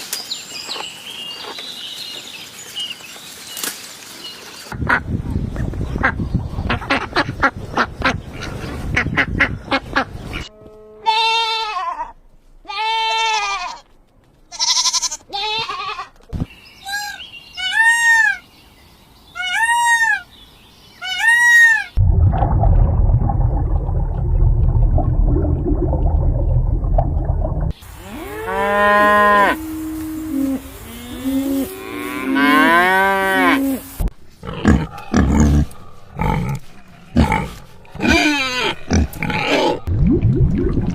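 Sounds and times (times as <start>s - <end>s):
cattle mooing: 28.0s - 33.8s.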